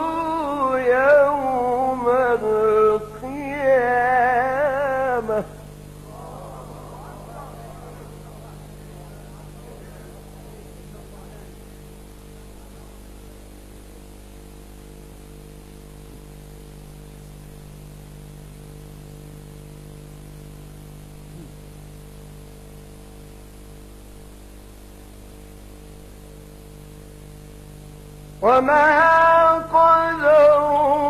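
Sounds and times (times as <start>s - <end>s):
electrical hum with hiss: 0.0s - 31.0s.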